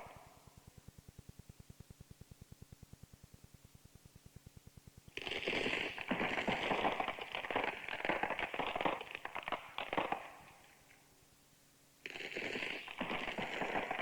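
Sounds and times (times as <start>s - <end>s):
dense crackling and rasping: 5.1s - 11.0s, 12.0s - 14.0s.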